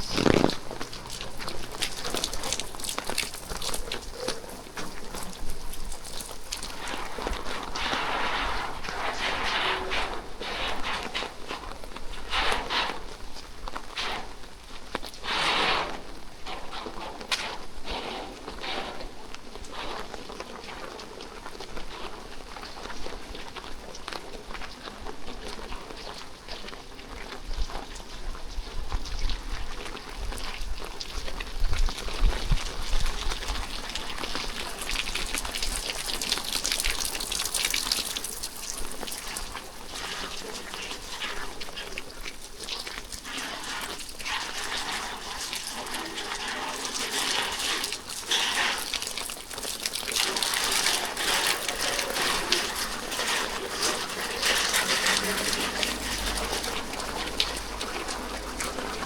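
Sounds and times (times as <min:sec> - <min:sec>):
water splashing: 0:00.0 - 0:12.3, 0:32.7 - 0:59.0
rain pattering: 0:00.0 - 0:59.0.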